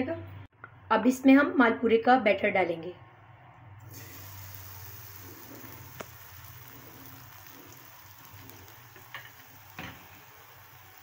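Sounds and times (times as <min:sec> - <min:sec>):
batter sizzling in hot fat: 0:03.9 - 0:11.0.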